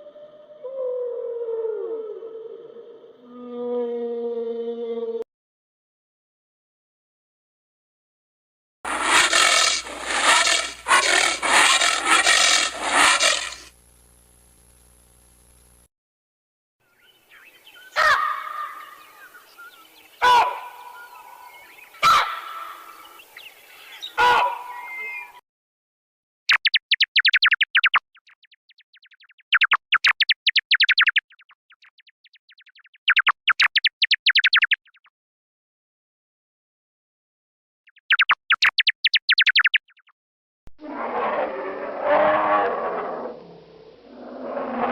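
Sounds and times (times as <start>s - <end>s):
animal calling in harsh bursts: 8.9s - 13.7s, 22.0s - 22.8s, 24.2s - 24.8s.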